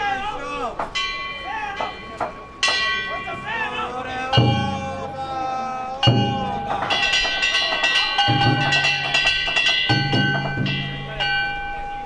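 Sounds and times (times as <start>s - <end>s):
hand gongs ringing: 0.8s - 5.2s, 6.0s - 12.0s
deep drum beat: 4.3s - 5.2s, 6.0s - 11.2s.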